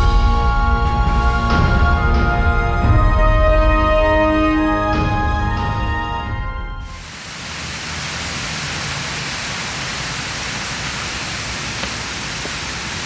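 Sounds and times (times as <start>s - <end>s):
background music: 0.0s - 7.0s
steady outdoor hiss: 6.9s - 13.0s.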